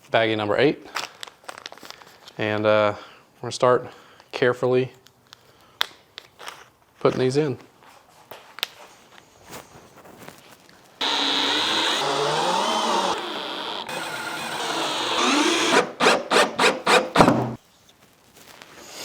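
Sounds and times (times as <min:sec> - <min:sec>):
power drill driving screws: 0:11.0 - 0:17.6.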